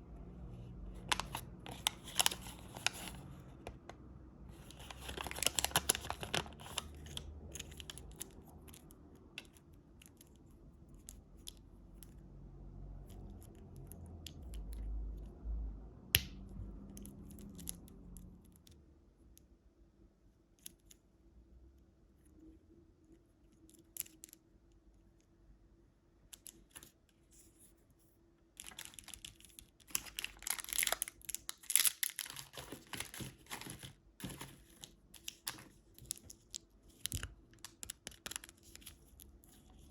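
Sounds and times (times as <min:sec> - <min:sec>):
wrappers crinkling and tearing: 0:01.0 - 0:03.3, 0:04.5 - 0:08.4, 0:28.6 - 0:39.9.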